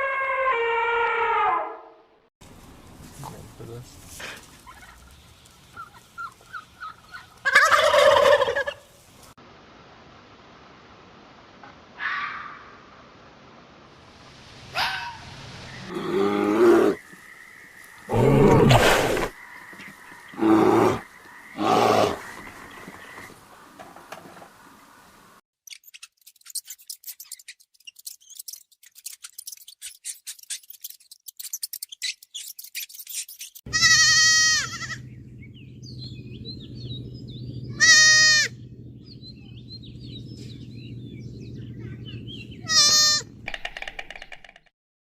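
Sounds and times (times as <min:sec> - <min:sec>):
farm animal bleating: 0:33.7 - 0:35.1, 0:37.7 - 0:38.6, 0:42.6 - 0:43.3
low steady hum: 0:33.9 - 0:42.7.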